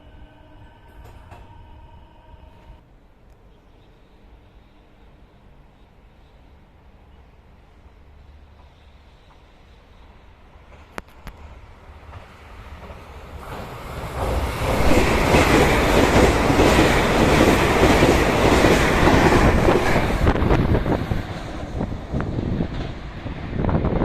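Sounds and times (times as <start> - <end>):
train wheels clattering over rails: 10.6 - 23.3.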